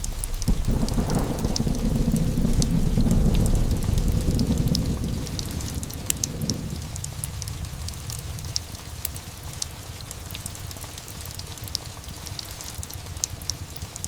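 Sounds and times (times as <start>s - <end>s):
rolling thunder: 0.0s - 9.0s
small ticks and crackles: 0.0s - 14.0s
steady rain: 0.0s - 14.0s.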